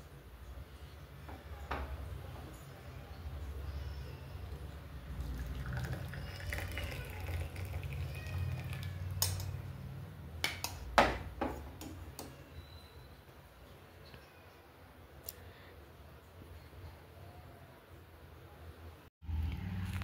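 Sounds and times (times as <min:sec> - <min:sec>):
tea pouring into a cup: 0:05.1 - 0:09.4.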